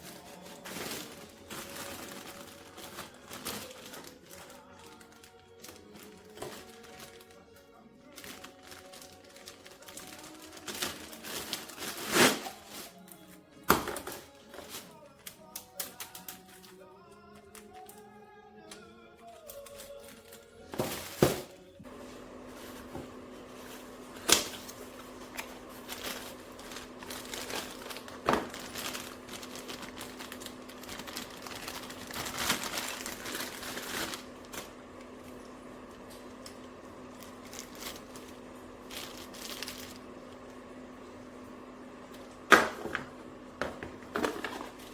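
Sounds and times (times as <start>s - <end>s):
packaging crinkling and tearing: 0.0s - 13.3s, 14.3s - 16.7s, 19.4s - 40.6s, 44.0s - 44.9s
steady low hum: 21.8s - 44.9s.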